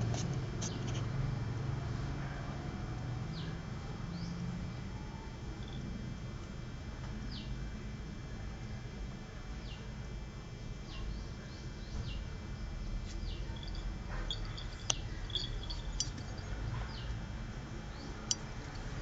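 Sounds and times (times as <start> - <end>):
steady low hum: 10.2 - 19.0
bird chirping: 13.3 - 17.1.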